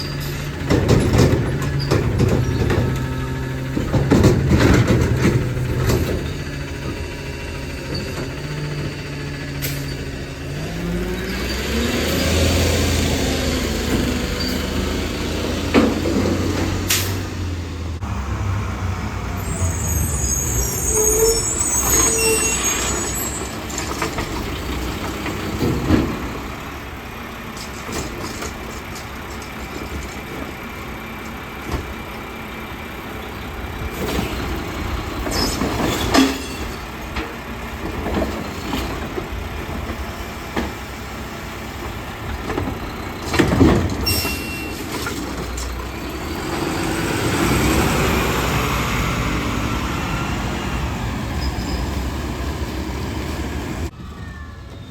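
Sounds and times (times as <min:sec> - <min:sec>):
garbage truck diesel engine: 0:00.0 - 0:54.9
air brakes hissing: 0:19.4 - 0:23.6.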